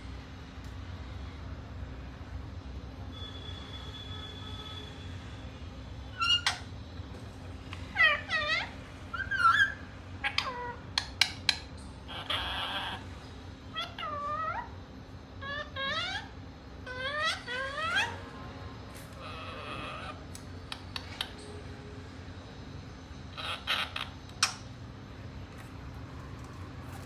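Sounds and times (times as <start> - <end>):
parrot shrill calls: 6.1 - 6.7, 7.9 - 13.1, 13.7 - 14.8, 15.4 - 18.3, 19.1 - 20.2, 23.3 - 24.6.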